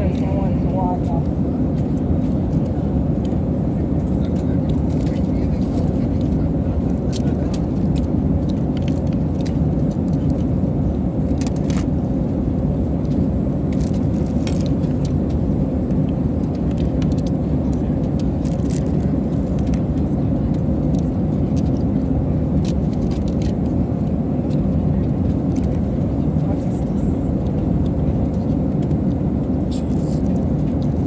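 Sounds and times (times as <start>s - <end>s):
airliner cabin rumble: 0.0s - 31.0s
clicks and rattles of small items: 16.5s - 19.9s.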